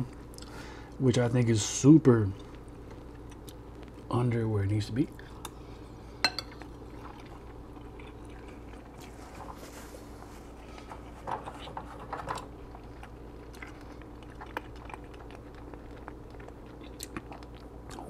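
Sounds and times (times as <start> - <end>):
quiet chewing: 2.3 - 4.1, 5.1 - 18.0
paper towel rustling: 9.1 - 11.3.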